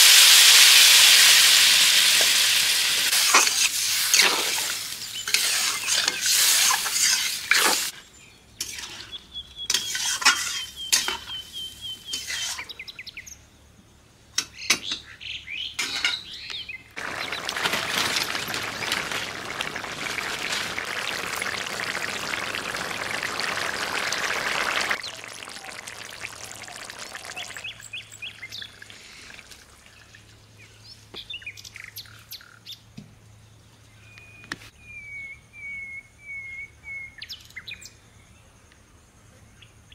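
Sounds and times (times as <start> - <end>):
curry sizzling and stirred: 0.0 - 7.9, 17.0 - 30.2
steady hiss: 0.0 - 7.9, 17.0 - 27.8
small birds chirping: 14.6 - 32.8.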